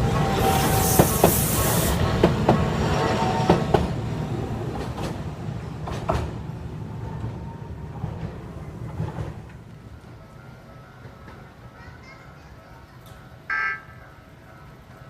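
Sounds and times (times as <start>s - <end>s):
train wheels clicking over rail joints: 0.0s - 6.5s.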